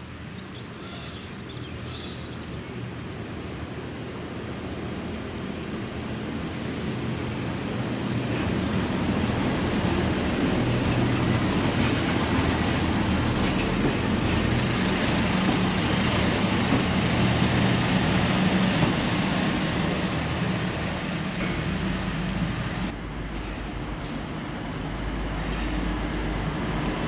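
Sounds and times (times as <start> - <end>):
diesel train engine drone: 1.8 - 27.0
train wheels on rail: 2.9 - 27.0.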